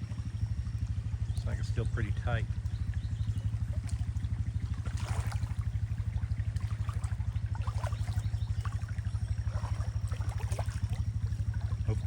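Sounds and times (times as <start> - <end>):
low pulsing drone: 0.0 - 12.0
water trickling and splashing: 0.6 - 12.0.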